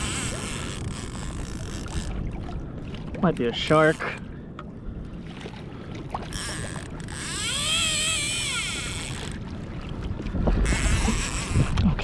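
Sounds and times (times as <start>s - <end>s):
fishing reel drag whining: 0.0s - 2.1s, 6.3s - 9.4s, 10.6s - 11.6s
water washing against boat: 0.0s - 12.0s.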